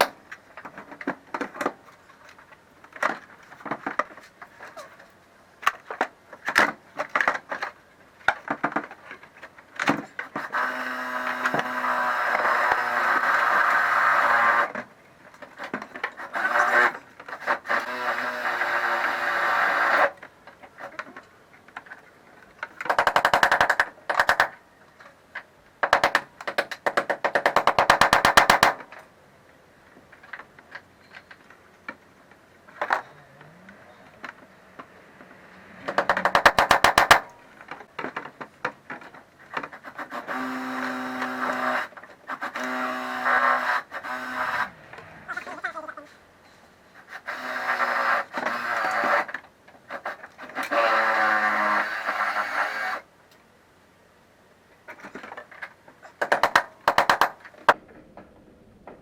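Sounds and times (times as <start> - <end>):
small tool motor humming: 10.5 - 14.7, 40.1 - 44.8.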